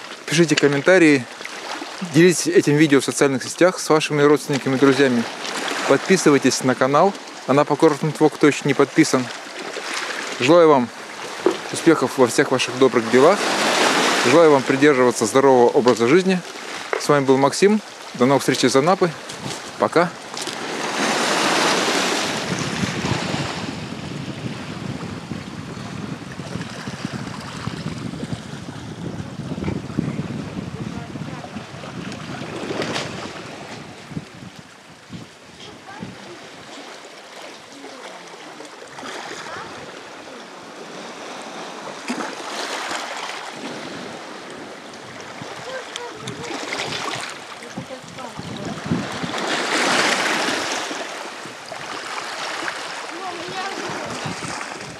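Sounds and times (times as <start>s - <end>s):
waves washing onto pebble beach: 0.0s - 26.3s, 28.9s - 54.9s
surf breaking on shore: 0.0s - 54.9s
wind buffeting microphone: 19.2s - 36.8s, 43.6s - 50.8s, 51.4s - 54.9s.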